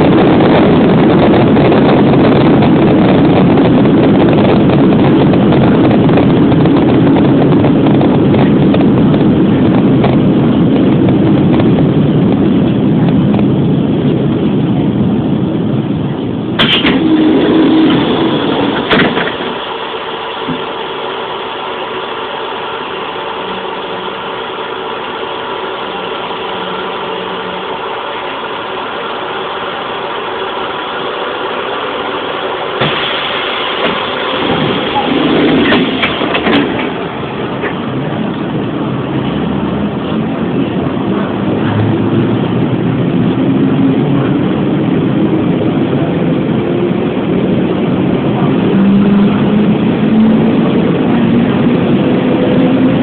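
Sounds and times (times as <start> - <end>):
steady electrical hum: 0.0 - 48.6
train wheels rumbling on rails: 0.0 - 53.0
sudden loud sound: 16.5 - 30.1, 31.6 - 39.3.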